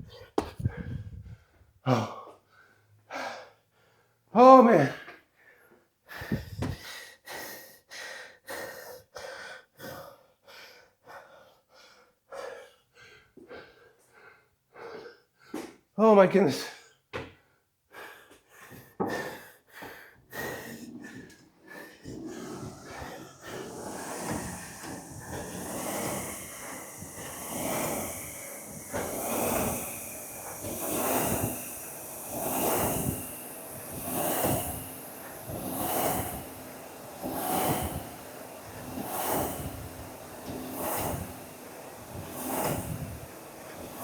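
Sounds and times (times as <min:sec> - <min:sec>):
heavy breathing: 0:00.0 - 0:04.1, 0:17.9 - 0:44.0
fan flywheel whooshing: 0:20.4 - 0:44.0
steady hum: 0:21.5 - 0:44.0.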